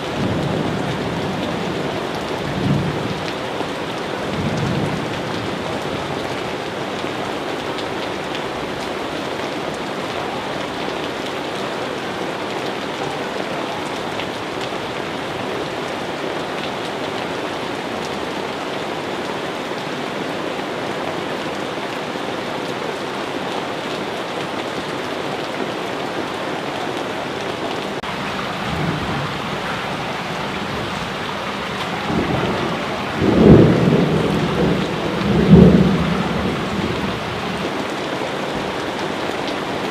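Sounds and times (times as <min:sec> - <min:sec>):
steady rain falling: 0:00.0 - 0:39.9
thunder rumbling: 0:28.0 - 0:37.8.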